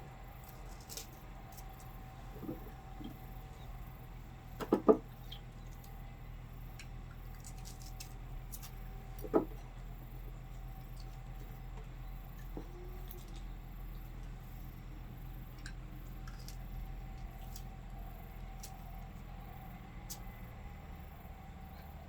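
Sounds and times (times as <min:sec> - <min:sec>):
faint steady hum: 0:00.0 - 0:22.0
small ticks: 0:05.2 - 0:20.4.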